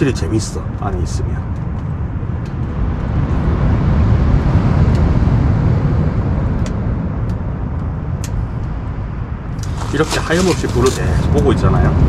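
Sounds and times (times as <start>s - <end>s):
firewood crackling in stove: 9.5s - 11.4s
sea surf: 9.6s - 12.0s.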